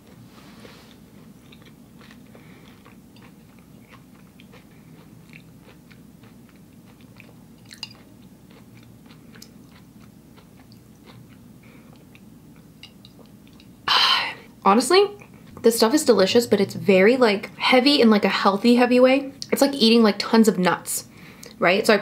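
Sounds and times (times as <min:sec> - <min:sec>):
low steady hum: 0:00.0 - 0:22.0
chewing with wet clicks: 0:01.2 - 0:13.8.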